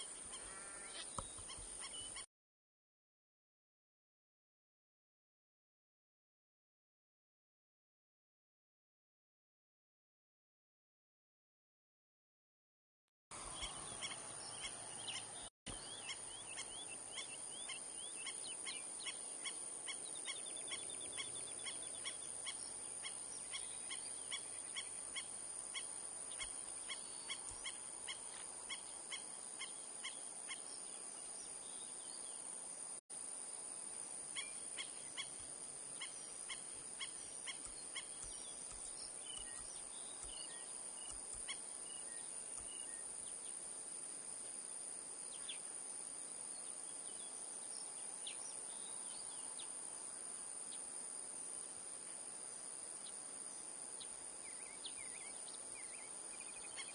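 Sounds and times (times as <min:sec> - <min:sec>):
faint bird song and calls: 0:00.0 - 0:02.3, 0:13.4 - 0:32.6, 0:34.3 - 0:51.0, 0:53.0 - 0:56.9
outdoor background noise: 0:00.0 - 0:02.3, 0:13.3 - 0:56.9.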